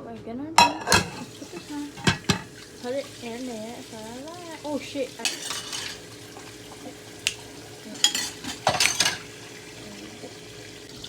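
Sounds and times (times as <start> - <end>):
faint steady hum: 0.0 - 11.0
dishes and utensils clinking: 0.6 - 3.0, 5.2 - 9.5.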